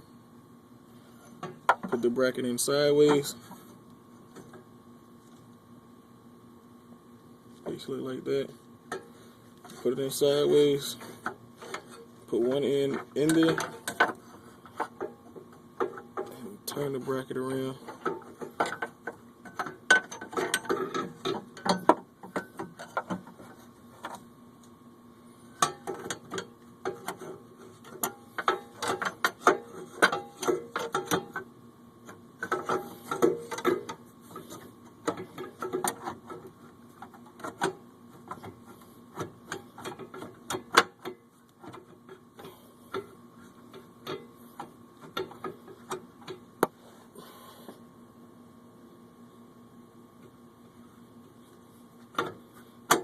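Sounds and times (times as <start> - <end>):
faint steady hum: 0.0 - 53.0
metallic clicks and clanks of tools: 8.9 - 16.4, 17.6 - 23.4, 25.6 - 31.5, 32.1 - 38.5.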